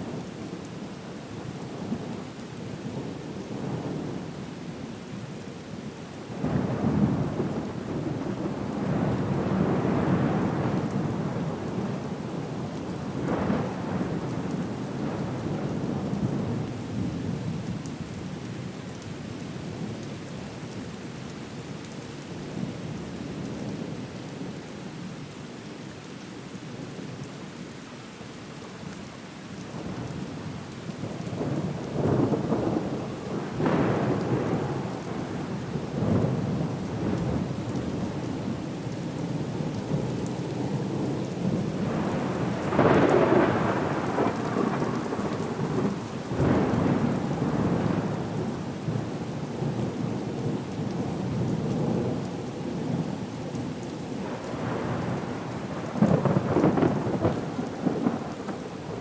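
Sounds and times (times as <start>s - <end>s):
steady rain: 0.0s - 59.0s
rolling thunder: 40.8s - 48.5s, 54.2s - 59.0s.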